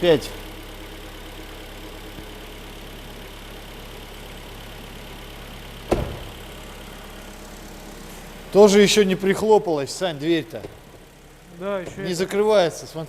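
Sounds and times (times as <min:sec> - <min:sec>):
car engine idling: 0:00.0 - 0:13.0
car door shutting: 0:05.8 - 0:06.6, 0:10.5 - 0:11.0, 0:11.8 - 0:12.3.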